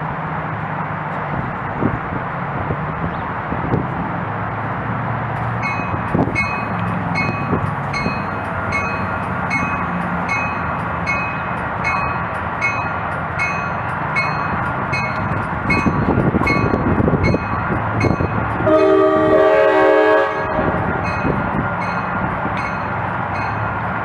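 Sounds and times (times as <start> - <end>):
train rumble: 0.0 - 24.0
crossing bell dinging: 5.4 - 24.0.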